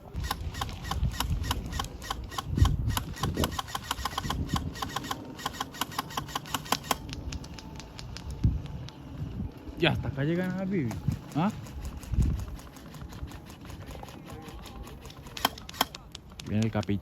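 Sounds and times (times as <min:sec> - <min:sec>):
airsoft guns firing clicks: 0:00.2 - 0:09.0, 0:10.9 - 0:17.0.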